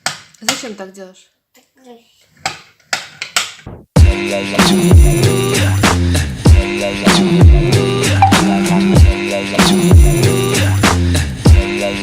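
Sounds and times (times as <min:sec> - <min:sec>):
background music with beat: 0:04.0 - 0:12.0.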